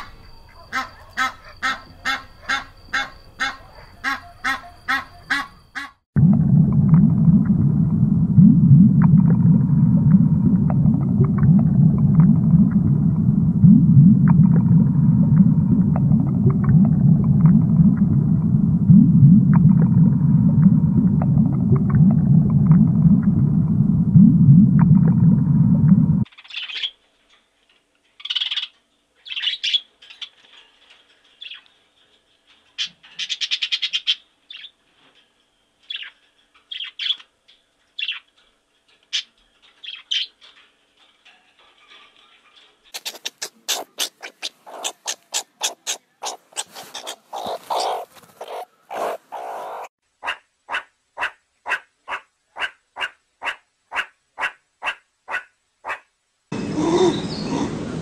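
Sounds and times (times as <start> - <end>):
low underwater rumble: 6.2 - 26.3
budgerigars chirping: 43.0 - 49.9, 56.8 - 57.8.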